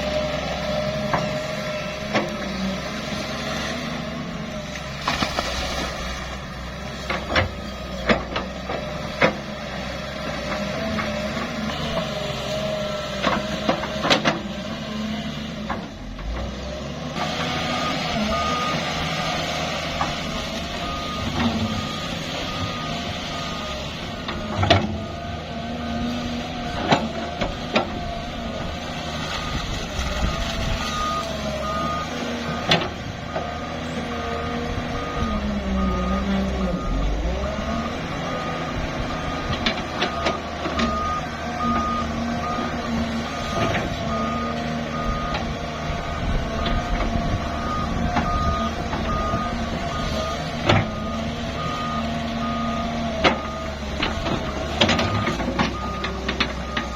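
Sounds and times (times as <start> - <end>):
diesel machinery engine running: 0.0 - 56.9
reversing alarm beeping: 0.1 - 2.7, 17.2 - 26.0, 29.2 - 32.7, 34.6 - 56.9.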